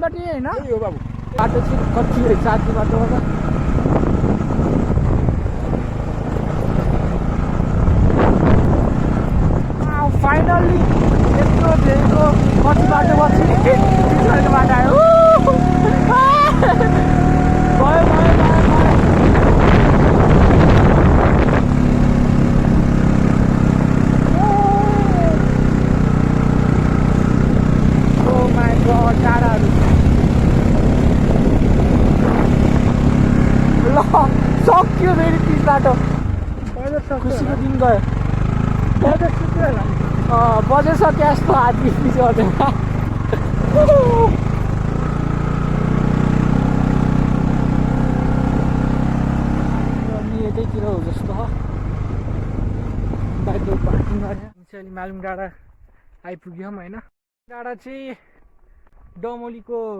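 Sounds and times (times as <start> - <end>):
motorcycle engine running: 0.0 - 54.6
wind on microphone: 3.1 - 36.7, 41.7 - 45.0, 51.4 - 54.6
rising and falling tone: 12.5 - 34.3.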